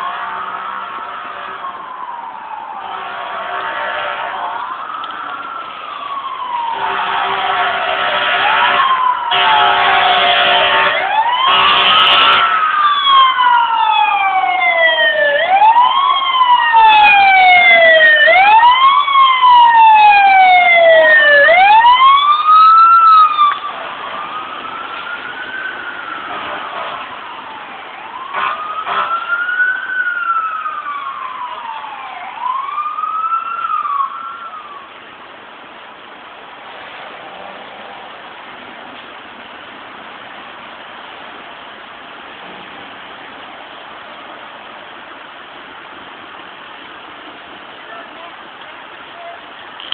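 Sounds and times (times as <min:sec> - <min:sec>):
fire engine siren wailing: 0:00.0 - 0:35.3
background rush: 0:00.0 - 0:49.8.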